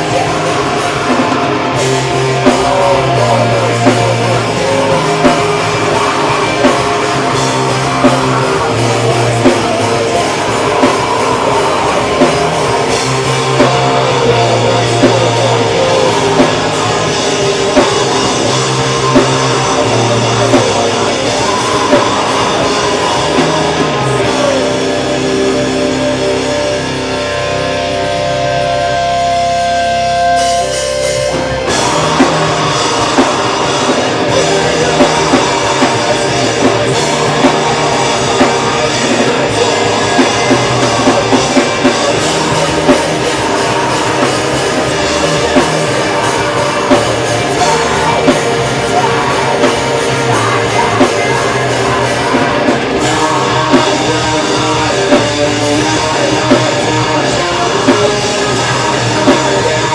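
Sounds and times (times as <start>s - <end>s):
metal band playing live: 0.0s - 59.9s.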